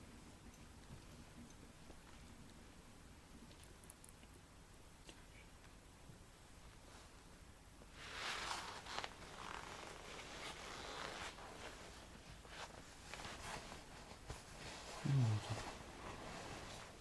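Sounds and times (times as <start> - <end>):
rustling and scraping handling noise: 7.9 - 17.0.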